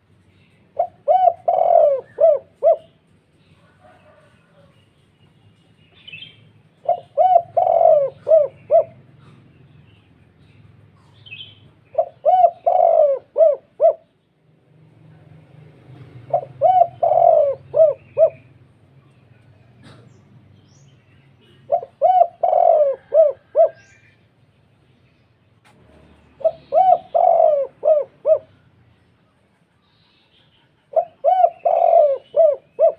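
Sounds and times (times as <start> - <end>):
dove cooing: 0.7 - 4.7, 6.8 - 9.6, 11.3 - 14.1, 16.2 - 18.6, 21.4 - 24.1, 26.2 - 28.8, 30.9 - 32.9.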